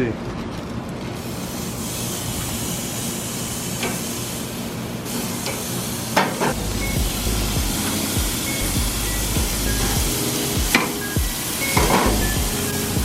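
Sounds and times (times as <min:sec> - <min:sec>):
meat sizzling on a grill: 0:01.2 - 0:13.0
low rumble: 0:06.6 - 0:10.2.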